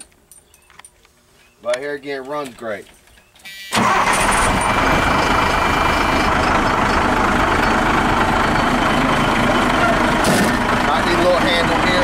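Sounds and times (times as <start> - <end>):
diesel truck engine idling: 3.8 - 12.0.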